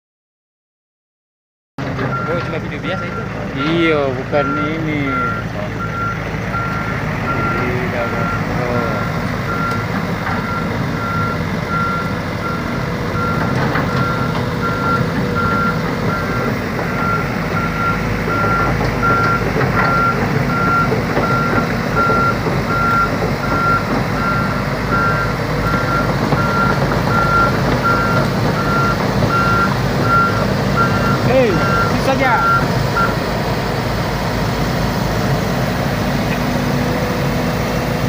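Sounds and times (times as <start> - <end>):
diesel engine rumbling: 1.8 - 38.0
backup alarm beeping: 4.4 - 33.2.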